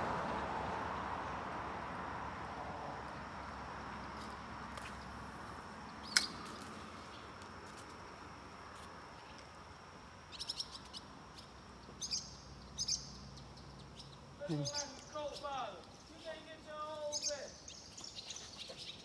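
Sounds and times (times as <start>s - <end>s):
faint outdoor hiss: 0.0s - 19.0s
small birds chirping: 4.8s - 7.4s, 10.2s - 19.0s.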